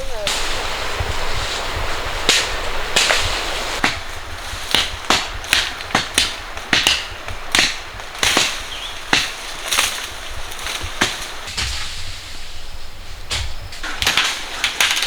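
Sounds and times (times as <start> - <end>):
blade chopping into wood: 3.8 - 12.0.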